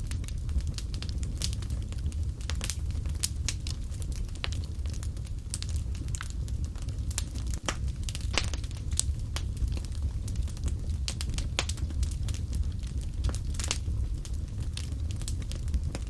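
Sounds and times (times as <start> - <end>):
low steady rumble: 0.0 - 16.0
wood fire crackling: 0.0 - 16.0.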